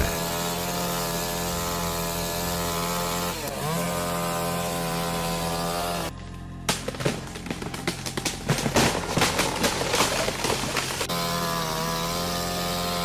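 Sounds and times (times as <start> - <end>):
chainsaw running at high revs: 0.0 - 6.1, 10.2 - 13.0.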